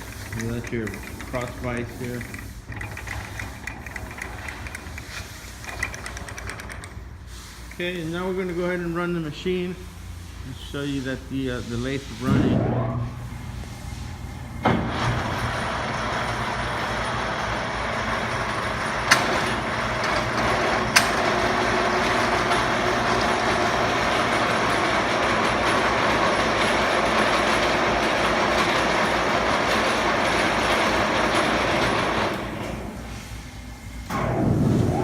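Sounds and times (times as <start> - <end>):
lathe running with mechanical whir: 0.0 - 12.2, 13.0 - 35.0.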